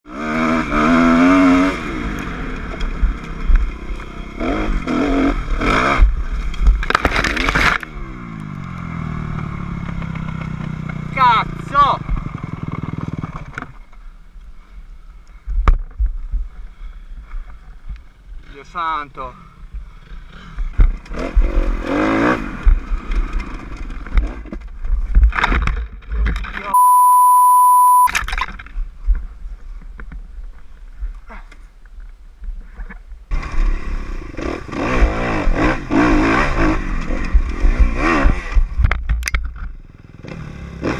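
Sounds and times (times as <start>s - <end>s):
dirt bike engine revving: 0.1s - 6.2s, 20.1s - 24.5s, 33.3s - 38.7s
dirt bike engine running: 0.1s - 13.8s, 33.3s - 38.8s
high-pitched censor beep: 26.7s - 28.2s.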